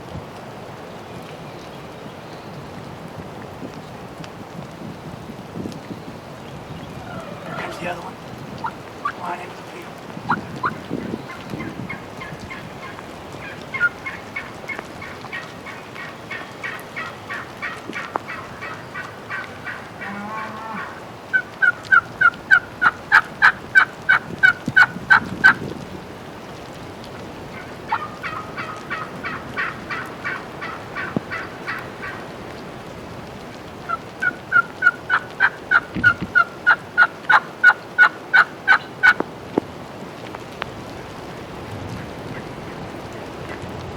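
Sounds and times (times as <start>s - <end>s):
turkey yelping: 7.0s - 25.6s, 27.5s - 32.2s, 33.9s - 39.2s.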